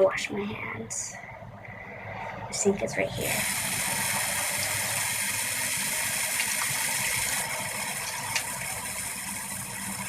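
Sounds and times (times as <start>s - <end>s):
tap water running into a sink: 3.3s - 10.0s.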